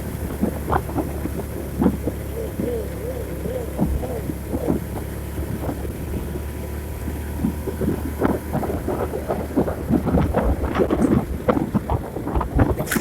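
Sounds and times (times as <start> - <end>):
vehicle rumbling along road: 0.0 - 13.0
wind buffeting microphone: 0.0 - 13.0.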